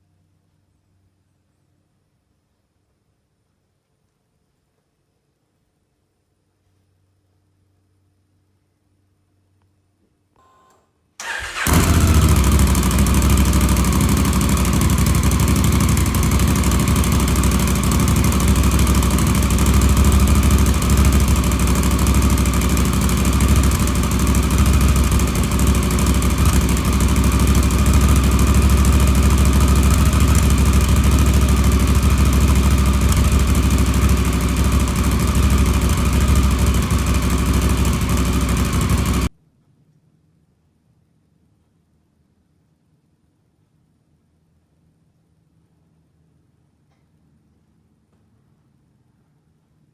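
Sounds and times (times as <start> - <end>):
motorcycle engine starting and idling: 11.2 - 39.3.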